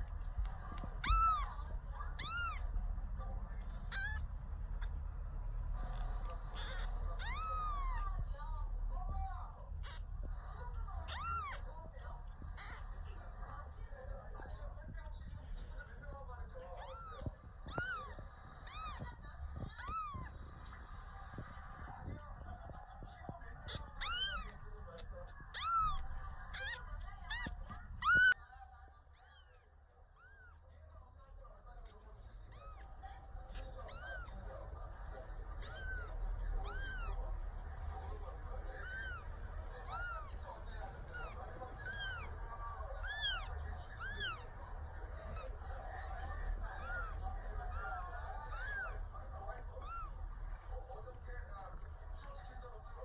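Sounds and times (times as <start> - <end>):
kitten mewing: 0.8 - 2.7, 3.6 - 4.2, 6.5 - 8.2, 11.0 - 11.7, 16.8 - 20.4, 23.2 - 28.4, 33.5 - 34.5, 35.6 - 37.2, 38.7 - 42.4, 43.0 - 44.6, 45.3 - 50.4.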